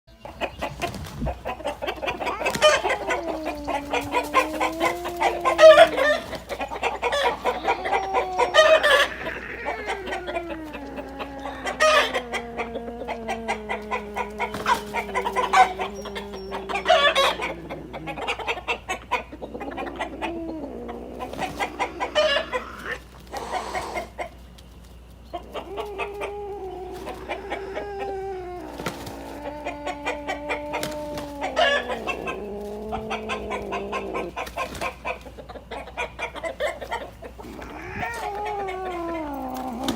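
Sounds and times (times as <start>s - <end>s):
chicken clucking and squawking: 0.1s - 39.9s
long wavering falling calls: 2.0s - 18.7s.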